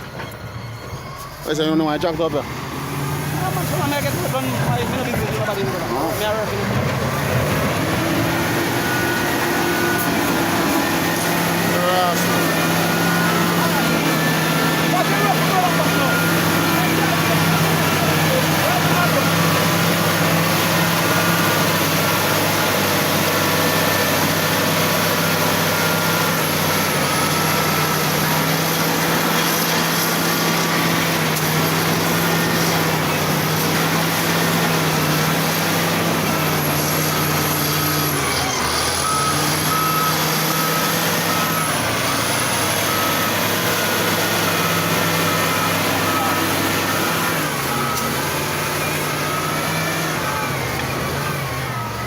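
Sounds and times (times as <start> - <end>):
diesel engine of wheel loader: 0.0 - 52.0
reversing alarm beeping: 0.0 - 52.0.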